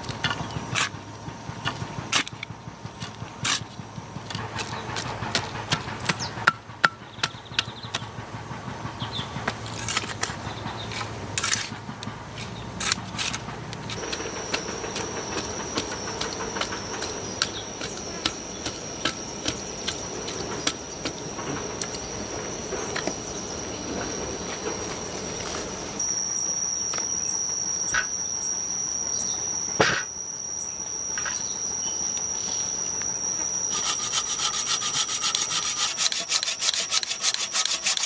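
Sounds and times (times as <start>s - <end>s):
high whistling tone: 14.0s - 38.0s.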